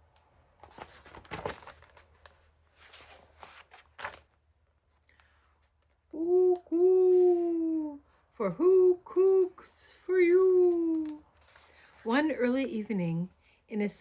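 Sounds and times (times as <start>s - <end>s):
paper rustling and crinkling: 0.6s - 6.0s, 10.6s - 12.3s.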